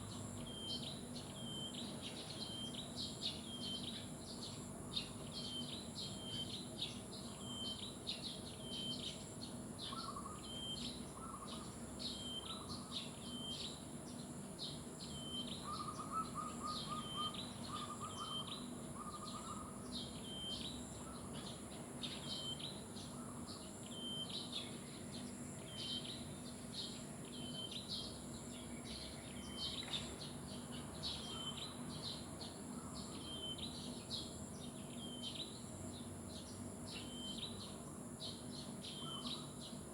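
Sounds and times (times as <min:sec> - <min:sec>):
lower trilling bird call: 0:15.0 - 0:21.5, 0:36.9 - 0:37.8, 0:38.9 - 0:39.8.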